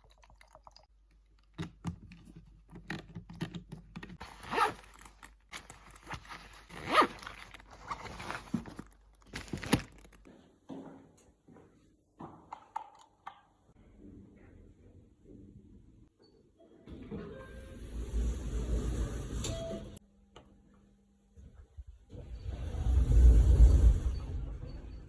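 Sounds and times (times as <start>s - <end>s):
handling clicks and knocks: 1.4s - 10.3s.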